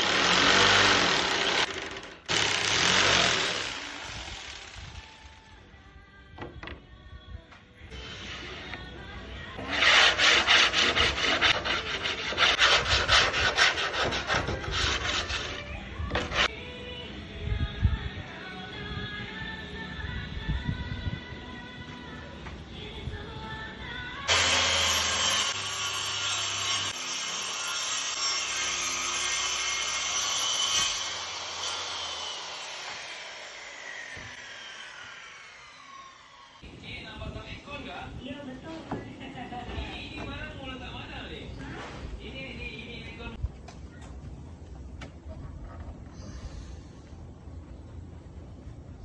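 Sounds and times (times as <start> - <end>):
power saw cutting wood: 0.0 - 5.4, 9.6 - 16.5, 24.3 - 36.7
tool rubbing on wood: 9.6 - 16.5.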